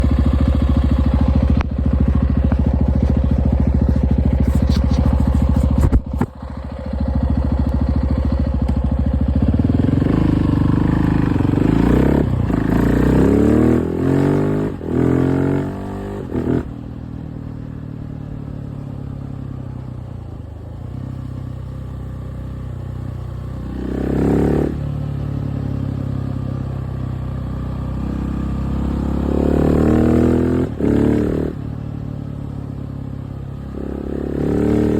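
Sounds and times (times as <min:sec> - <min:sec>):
motorcycle engine revving: 0:00.0 - 0:19.8, 0:20.4 - 0:34.9.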